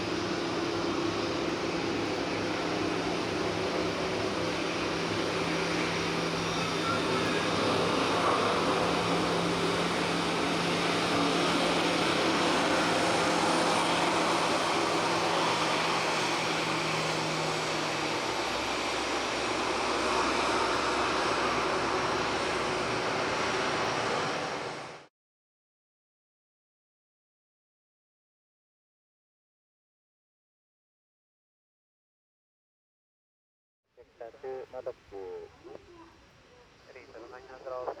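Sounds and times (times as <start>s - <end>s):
airliner engines rushing: 0.0s - 25.1s, 34.1s - 38.0s.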